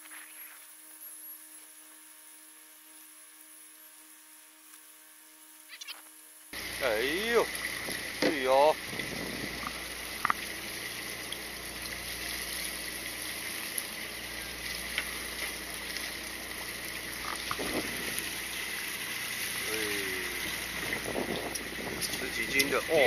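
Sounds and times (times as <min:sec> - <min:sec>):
sea water splashing around boat: 0:06.6 - 0:23.0.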